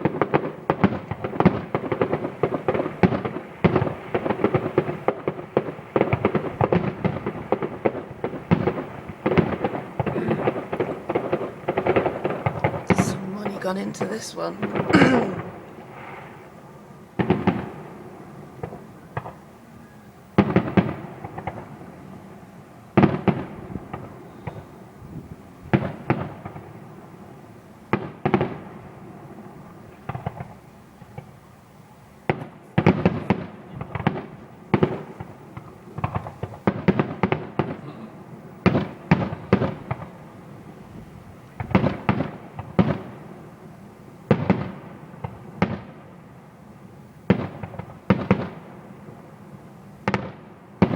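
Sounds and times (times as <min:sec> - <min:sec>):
firework booms: 0:00.0 - 0:16.3, 0:32.3 - 0:40.5
fireworks crackling: 0:00.0 - 0:19.5, 0:20.3 - 0:50.9.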